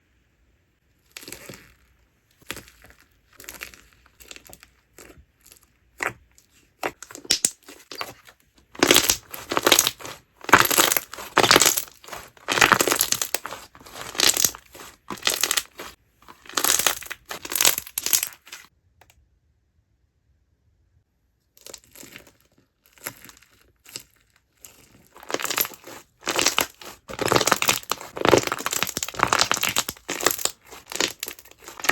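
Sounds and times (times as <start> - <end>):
slime popping and crackling: 1.1 - 1.8, 2.4 - 6.2, 6.8 - 18.7, 22.9 - 31.9.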